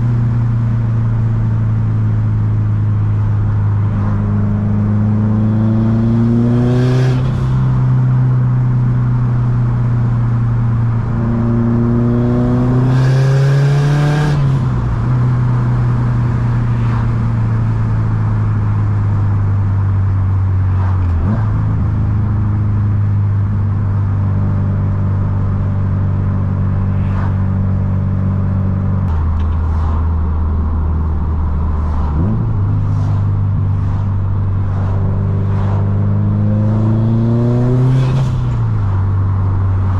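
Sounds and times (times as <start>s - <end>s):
turbocharged car engine revving: 11.0s - 18.3s, 28.8s - 39.9s.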